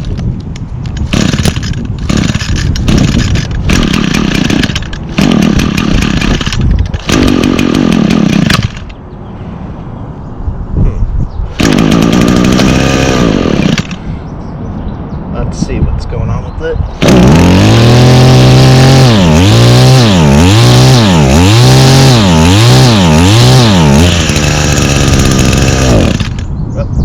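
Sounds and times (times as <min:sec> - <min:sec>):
string trimmer engine revving: 0:01.0 - 0:09.0, 0:11.6 - 0:14.0, 0:16.9 - 0:26.5.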